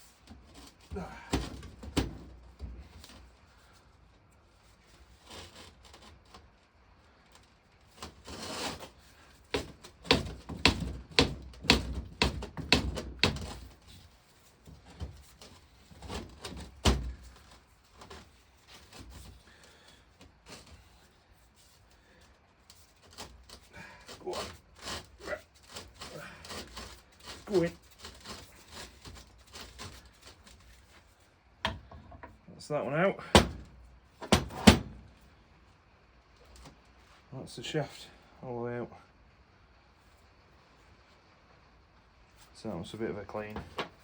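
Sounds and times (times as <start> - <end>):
hammer knocks and taps on metal: 9.6 - 13.6, 33.3 - 34.9.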